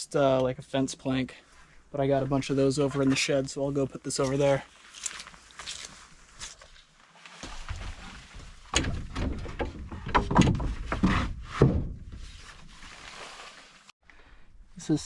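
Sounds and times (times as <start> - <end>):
wooden board knocks and thuds: 8.7 - 12.2.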